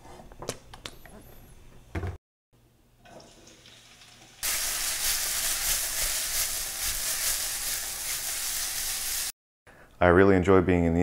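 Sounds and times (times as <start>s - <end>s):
peppers sizzling in a skillet: 3.2s - 9.4s.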